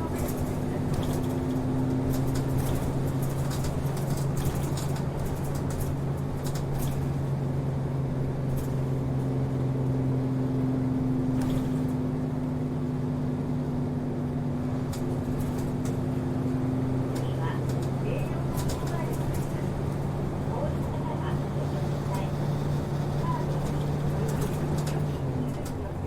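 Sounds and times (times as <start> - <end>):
light rattles: 0.0 - 7.4, 17.2 - 20.0, 21.8 - 26.0
bus diesel engine drone: 0.0 - 26.0.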